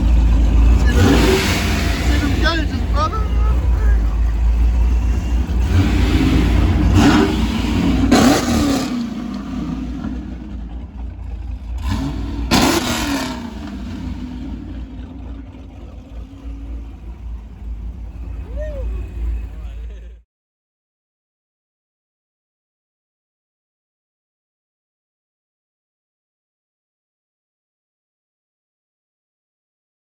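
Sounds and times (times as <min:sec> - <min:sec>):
car engine revving: 0:00.0 - 0:20.2.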